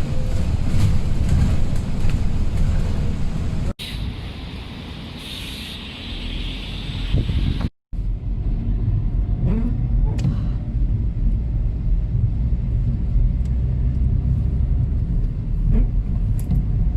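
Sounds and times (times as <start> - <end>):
low vehicle rumble: 6.1 - 16.9.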